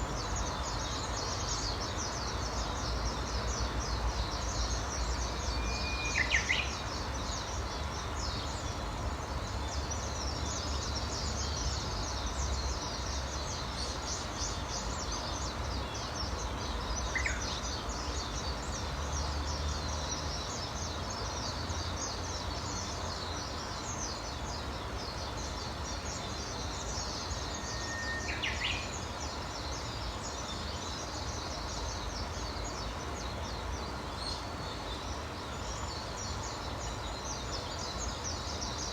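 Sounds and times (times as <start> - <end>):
whistled bird calls: 5.6 - 6.8, 27.6 - 28.9.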